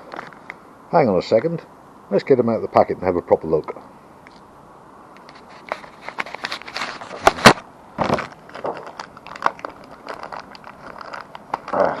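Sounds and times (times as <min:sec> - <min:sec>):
plastic packets rustling: 0:05.5 - 0:12.0.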